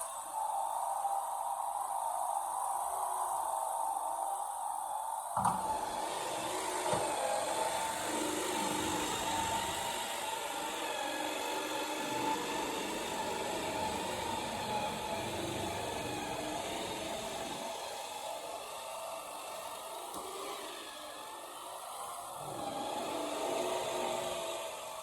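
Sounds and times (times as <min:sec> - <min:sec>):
vacuum cleaner whining hum: 0:00.0 - 0:25.0
knock: 0:05.4 - 0:05.7.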